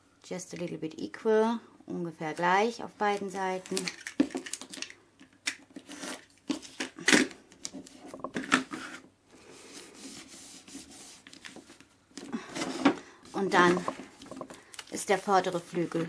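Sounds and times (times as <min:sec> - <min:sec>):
soft steady foil rustle: 0:02.2 - 0:05.0, 0:13.3 - 0:16.0
plastic foil snips and crackles: 0:03.1 - 0:07.8.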